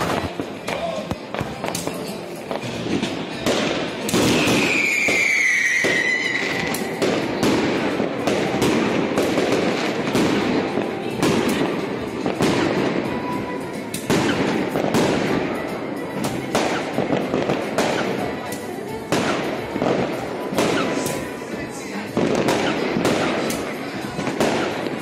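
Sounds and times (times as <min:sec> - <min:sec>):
fireworks bangs and crackles: 0:00.0 - 0:25.0
falling firework whistle: 0:04.4 - 0:06.7.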